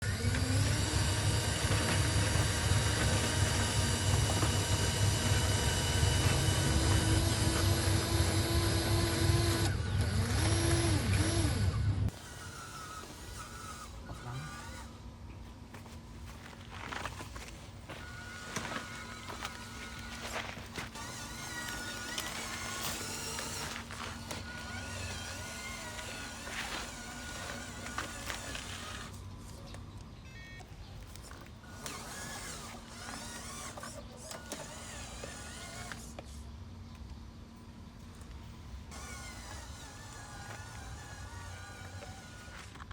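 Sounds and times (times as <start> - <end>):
thin motor whine: 0.0 - 42.9
toy electric motors humming: 0.0 - 42.9.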